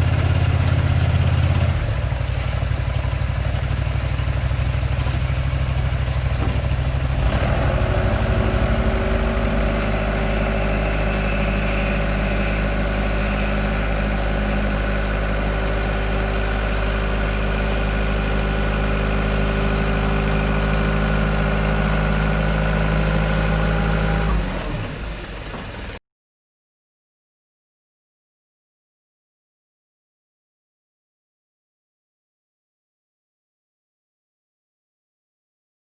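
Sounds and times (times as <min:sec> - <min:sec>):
machine engine running: 0:00.0 - 0:26.0.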